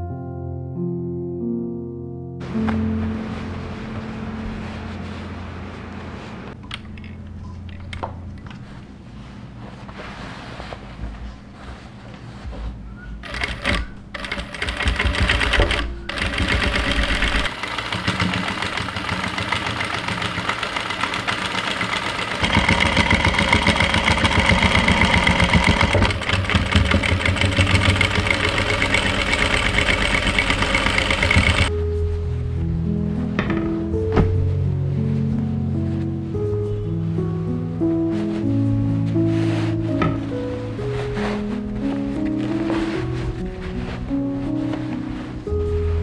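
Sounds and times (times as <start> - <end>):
electric sewing machine stitching: 13.2 - 31.7.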